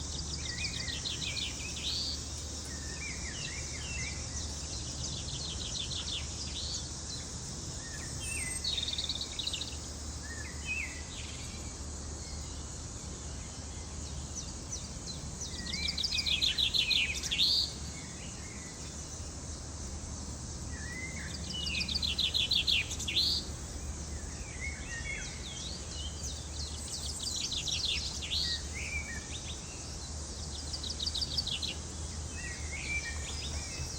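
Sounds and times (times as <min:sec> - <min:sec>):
high insect drone: 0:00.0 - 0:33.9
bird singing trills and chirps: 0:07.8 - 0:11.6, 0:14.0 - 0:19.0, 0:20.8 - 0:33.9.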